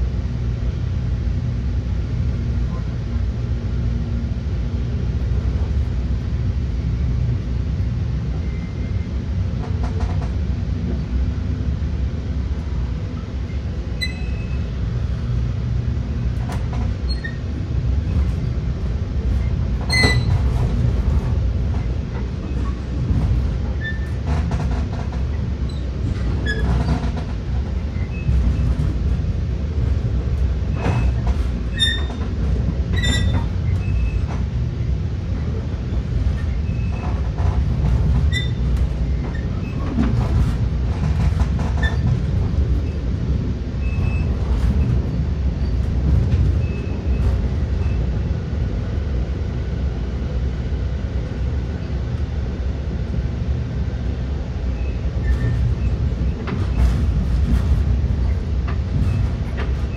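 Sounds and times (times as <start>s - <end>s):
train rumble inside car: 0.0s - 59.9s
high squeaks from wheels: 14.0s - 14.7s, 16.8s - 17.5s, 19.8s - 20.6s, 23.8s - 24.6s, 25.7s - 27.2s, 30.7s - 32.3s, 32.9s - 34.3s, 38.3s - 39.9s, 41.8s - 42.2s, 43.8s - 44.9s, 54.8s - 57.0s.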